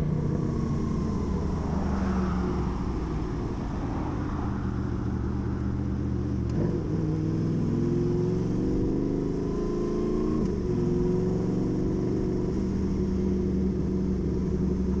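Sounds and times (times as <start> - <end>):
motorcycle engine running: 0.0 - 3.7.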